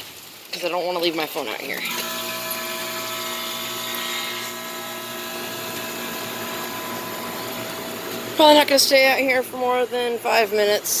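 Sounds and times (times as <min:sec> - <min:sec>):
rain: 0:00.0 - 0:03.5
fan hiss: 0:00.5 - 0:11.0
air conditioner compressor humming: 0:01.8 - 0:11.0.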